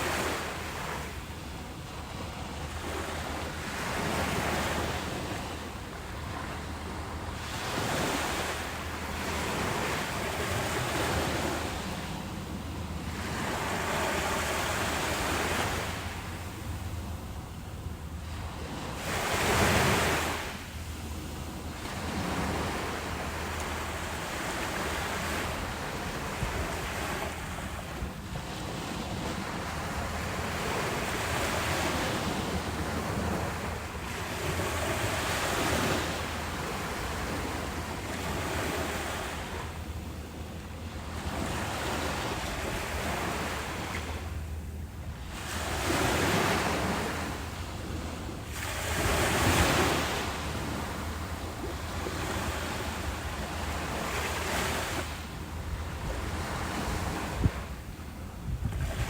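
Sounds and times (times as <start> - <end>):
ocean waves breaking on beach: 0.0 - 59.0
wind buffeting microphone: 55.0 - 59.0.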